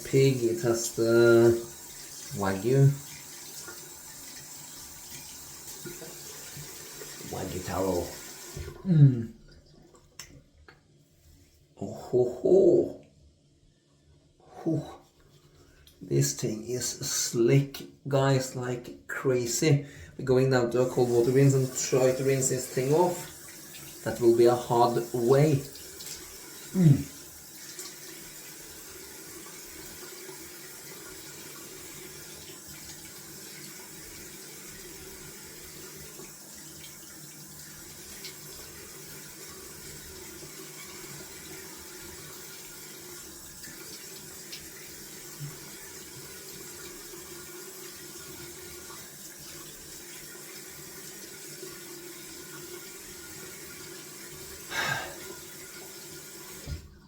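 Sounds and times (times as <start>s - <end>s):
tap running into a sink: 3.0s - 7.3s, 55.7s - 56.9s.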